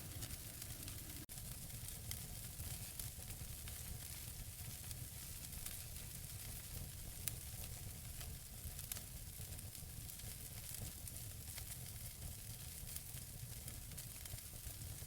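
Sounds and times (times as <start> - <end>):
fire crackles and pops: 0.0 - 15.0
wood fire burning: 0.0 - 15.0.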